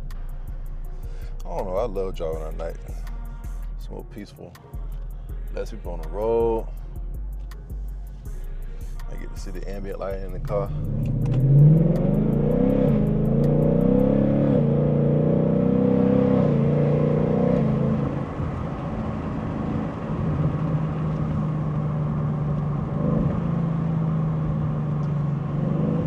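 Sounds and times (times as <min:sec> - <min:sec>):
car engine accelerating: 0:07.3 - 0:26.0.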